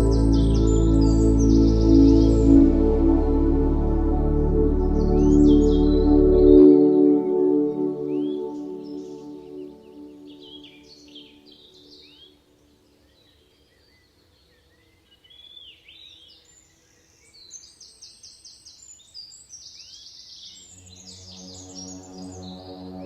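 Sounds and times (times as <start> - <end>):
ambient music drone: 0.0 - 11.9, 20.7 - 23.0.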